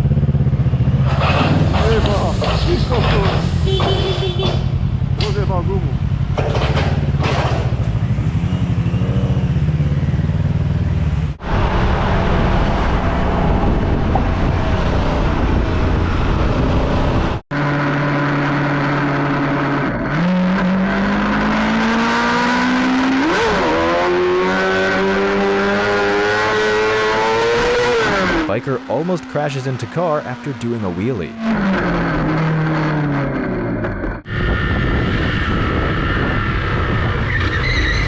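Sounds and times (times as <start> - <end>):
motorcycle engine: 0.0 - 28.6
road and wind noise: 0.0 - 38.0.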